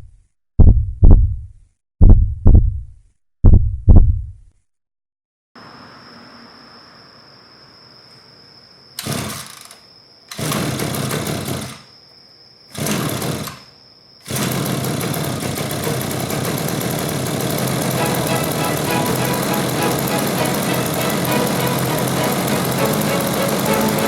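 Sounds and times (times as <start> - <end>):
lawn mower engine revving: 9.0 - 9.6, 10.3 - 11.7, 12.8 - 13.6, 14.2 - 24.0.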